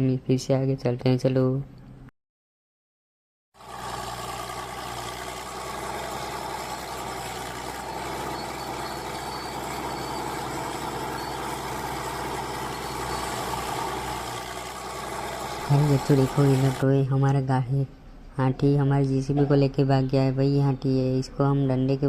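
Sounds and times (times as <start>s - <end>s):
vehicle engine drone: 3.6s - 16.9s.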